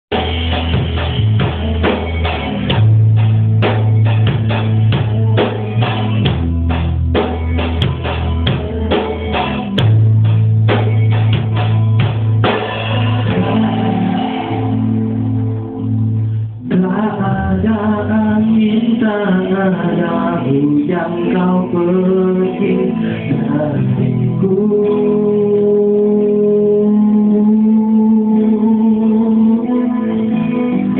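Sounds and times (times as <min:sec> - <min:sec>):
bass guitar: 0:00.0 - 0:30.9
drum kit playing: 0:00.1 - 0:24.3
guitar chords: 0:00.1 - 0:30.9.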